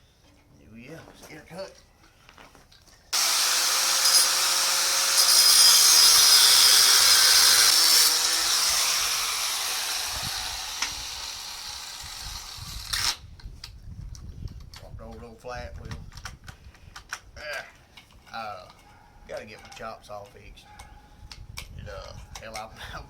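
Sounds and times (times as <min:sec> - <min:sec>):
angle grinder cutting steel: 0:03.2 - 0:13.2.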